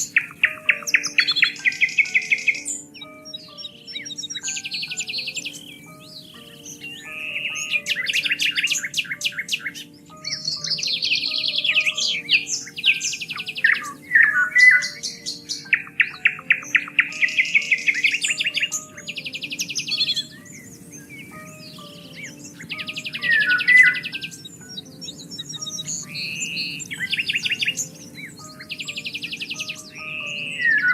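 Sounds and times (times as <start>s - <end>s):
soft background music: 0.0s - 30.9s
songbirds singing: 0.0s - 30.9s.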